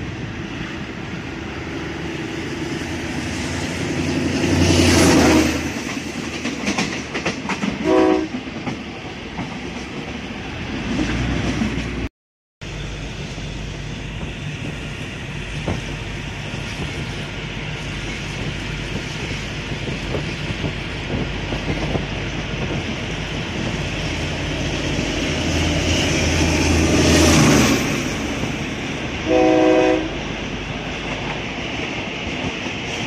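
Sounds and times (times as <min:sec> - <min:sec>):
train rumble and wheel clatter: 0:00.0 - 0:33.0
train horn blast: 0:05.0 - 0:05.7, 0:07.8 - 0:08.4, 0:29.2 - 0:30.2.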